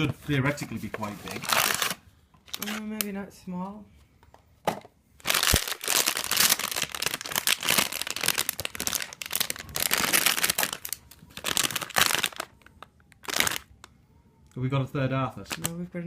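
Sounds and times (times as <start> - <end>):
plastic packaging crinkling: 1.0 - 2.9, 5.2 - 13.7, 15.4 - 15.8.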